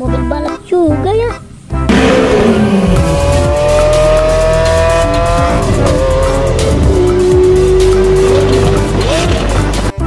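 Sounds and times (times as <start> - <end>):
car engine revving: 1.9 - 9.9.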